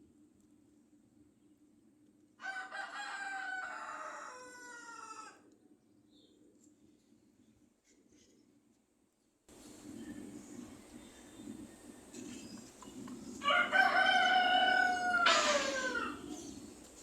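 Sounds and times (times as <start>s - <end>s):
rooster crowing: 2.4s - 5.4s, 13.4s - 16.6s.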